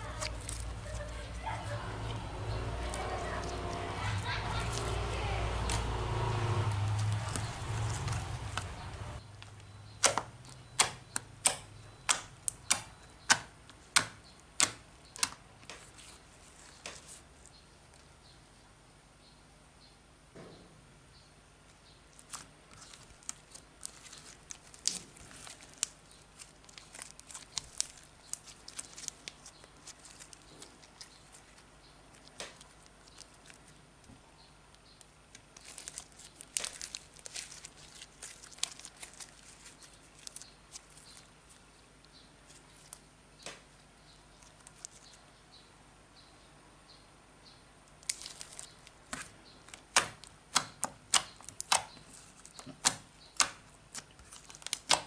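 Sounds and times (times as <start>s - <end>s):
slime crackling and popping: 22.2s - 33.8s, 35.4s - 41.5s, 48.0s - 55.0s.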